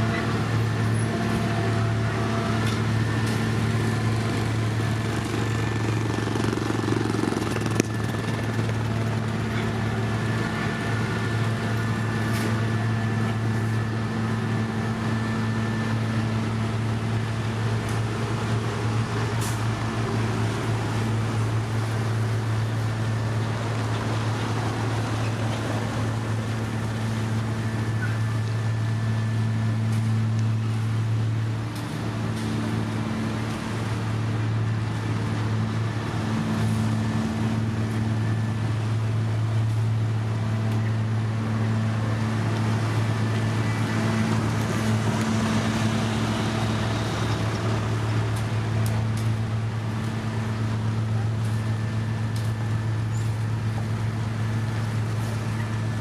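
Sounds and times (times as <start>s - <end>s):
heavy diesel machinery engine hum: 0.0s - 56.0s.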